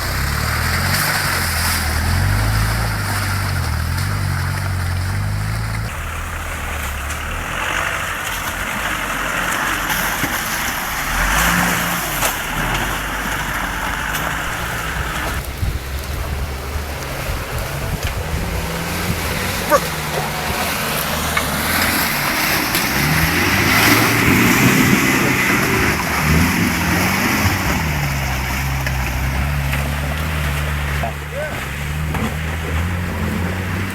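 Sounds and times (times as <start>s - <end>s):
off-road vehicle engine revving: 0.0s - 33.9s.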